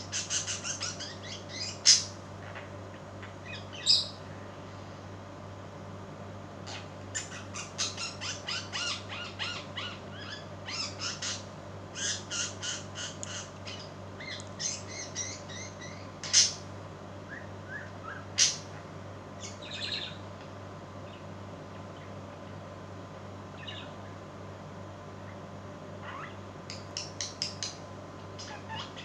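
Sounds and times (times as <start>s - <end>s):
bird chattering: 0.0s - 2.1s, 6.7s - 16.6s
loud sharp bird calls: 0.0s - 2.2s, 6.6s - 16.7s, 17.3s - 18.8s
pet birds chirping: 0.0s - 4.3s, 6.6s - 16.7s, 17.3s - 20.4s, 21.0s - 22.6s, 23.5s - 24.2s, 25.2s - 29.0s
steady low hum: 0.0s - 29.0s.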